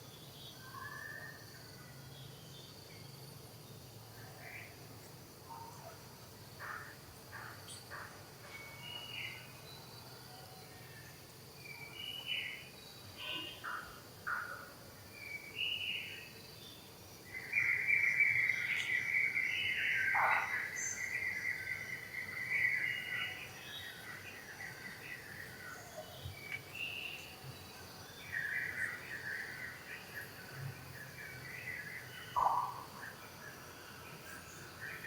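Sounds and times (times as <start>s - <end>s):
faint insect hum: 0.0s - 35.0s.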